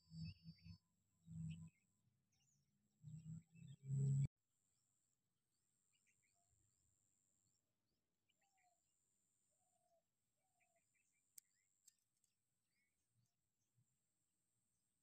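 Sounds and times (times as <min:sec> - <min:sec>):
faint bird chirps: 0:00.0 - 0:04.3, 0:05.8 - 0:06.6, 0:08.3 - 0:08.9, 0:09.5 - 0:14.1.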